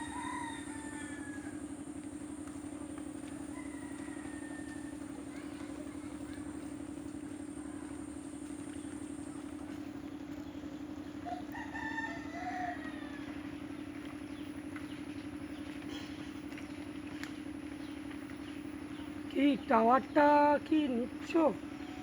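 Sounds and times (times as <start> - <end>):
rooster crowing: 0.0 - 2.0, 3.3 - 5.2, 11.2 - 13.6, 21.7 - 22.0
steady low hum: 0.0 - 22.0.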